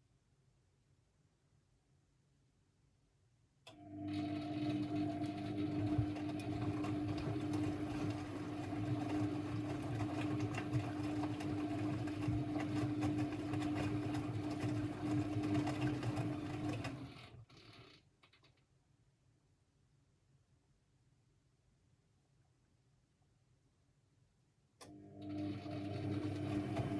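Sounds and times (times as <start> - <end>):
washing machine running: 3.8 - 17.6, 25.0 - 26.9.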